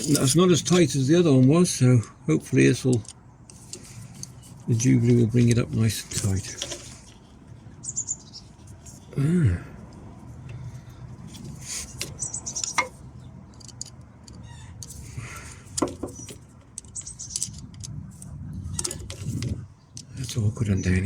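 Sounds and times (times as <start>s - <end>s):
screwdriver clicks and scrapes: 0.0s - 0.8s, 11.2s - 19.6s
person grunting: 9.1s - 9.8s.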